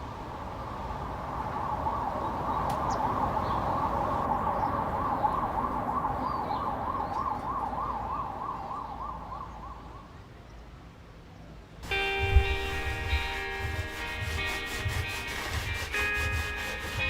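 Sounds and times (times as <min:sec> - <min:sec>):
low traffic rumble: 0:00.0 - 0:17.0
siren warbling: 0:00.9 - 0:10.2.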